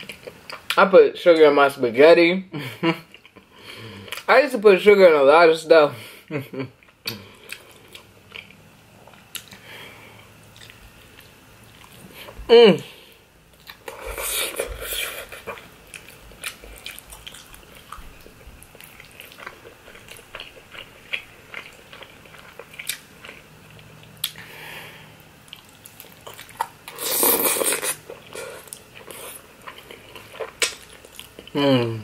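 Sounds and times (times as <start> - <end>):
person chewing wetly: 6.8 - 9.6, 10.2 - 12.4, 13.5 - 24.5, 25.4 - 31.6.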